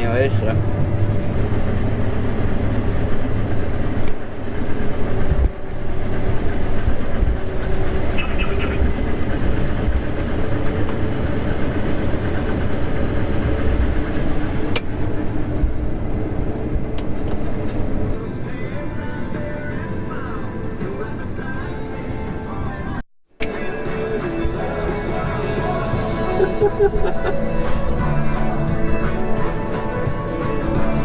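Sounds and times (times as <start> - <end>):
combine harvester engine drone: 0.0 - 22.7, 23.4 - 31.0.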